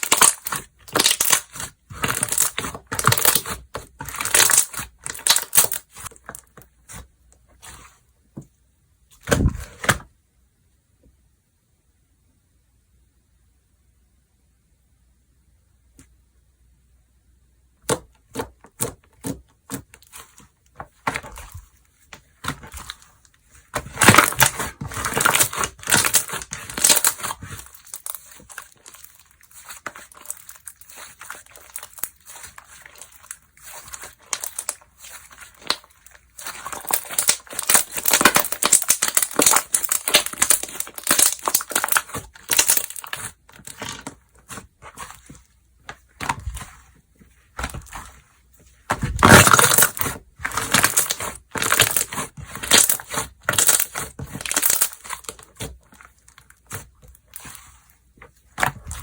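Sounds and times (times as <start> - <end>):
hands squeezing slime: 0.0 - 6.4, 22.4 - 59.0.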